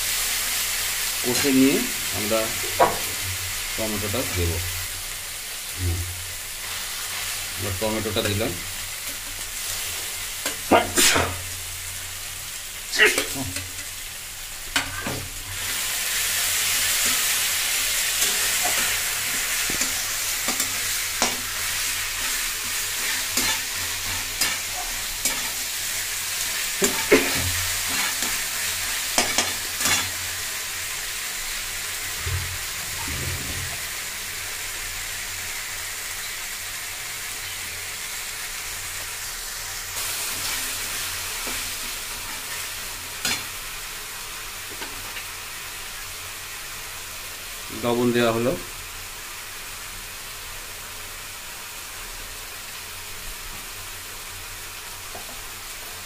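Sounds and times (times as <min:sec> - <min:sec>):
paste sizzling in hot oil: 0:00.0 - 0:56.0
spatula scraping and knocking pan: 0:02.6 - 0:03.4, 0:22.2 - 0:25.6, 0:26.8 - 0:28.4.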